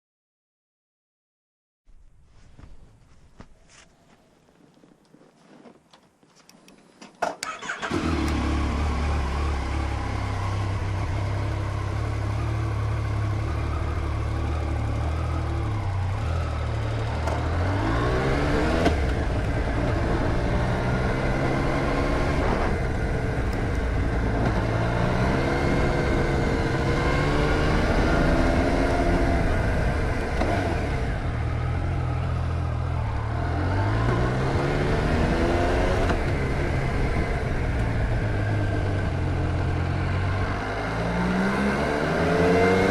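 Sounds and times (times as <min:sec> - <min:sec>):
motorcycle engine starting and idling: 0:07.2 - 0:40.9
motorcycle engine revving: 0:07.5 - 0:42.9.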